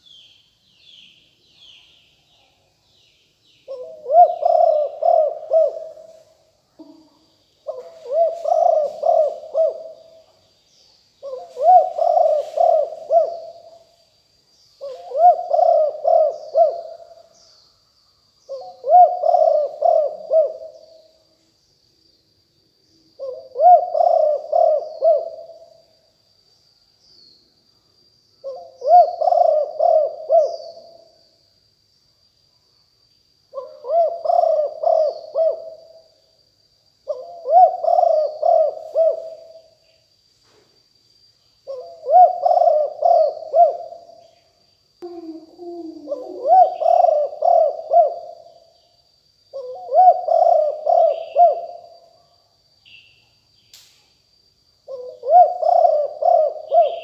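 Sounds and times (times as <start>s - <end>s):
faint steady high tone: 0.0s - 21.8s, 41.3s - 53.5s
dove cooing: 3.7s - 6.2s, 6.8s - 10.2s, 11.2s - 13.8s, 14.8s - 17.3s, 18.5s - 21.0s, 23.2s - 25.6s, 28.4s - 31.0s, 33.6s - 36.0s, 37.1s - 39.6s, 41.7s - 44.1s, 45.0s - 48.5s, 49.5s - 51.9s, 54.9s - 57.0s.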